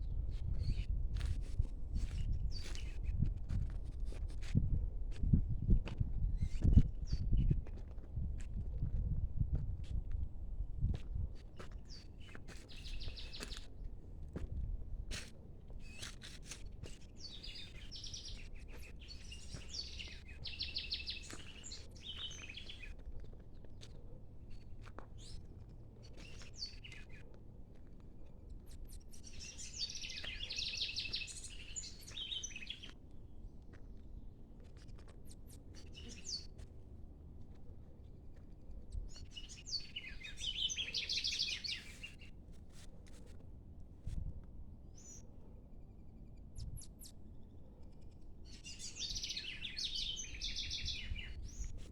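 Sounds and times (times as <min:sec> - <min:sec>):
birds singing and chirping: 0:17.2 - 0:22.9, 0:29.1 - 0:32.9, 0:39.0 - 0:42.2, 0:48.6 - 0:51.8.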